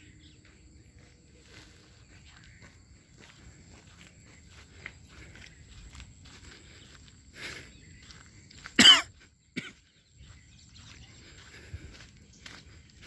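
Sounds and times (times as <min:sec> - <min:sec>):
person coughing: 0:08.8 - 0:09.8.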